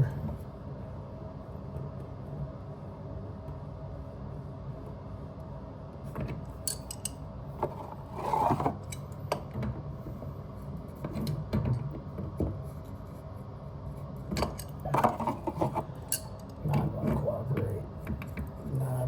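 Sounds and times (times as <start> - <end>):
metal tool scraping on pipe: 7.7 - 9.2, 14.4 - 16.5.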